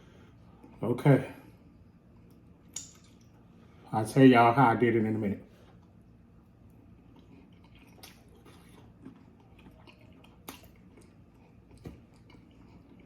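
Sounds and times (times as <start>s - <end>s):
person chewing food: 5.6s - 13.0s.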